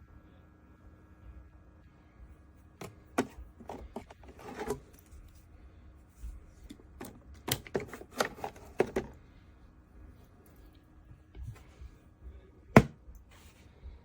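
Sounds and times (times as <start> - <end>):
plastic mini fridge knocks and clicks: 2.8 - 4.8, 12.8 - 13.0.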